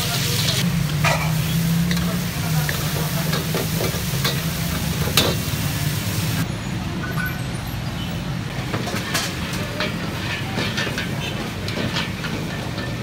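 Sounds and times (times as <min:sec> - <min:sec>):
metal utensils clanking on woks: 0:00.0 - 0:06.0, 0:08.5 - 0:13.0
meat sizzling in woks: 0:00.0 - 0:06.5.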